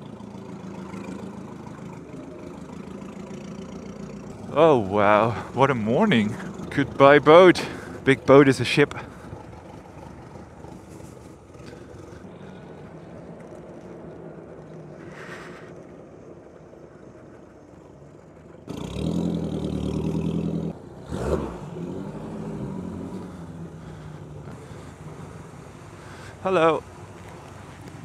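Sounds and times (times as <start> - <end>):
engines idling: 0.0 - 28.0
nearby engine revving loudly: 18.7 - 26.4.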